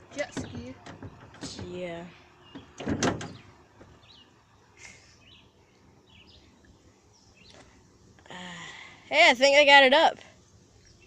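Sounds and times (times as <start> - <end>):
low outdoor background: 0.0 - 11.0
dull handling thump: 2.5 - 4.0.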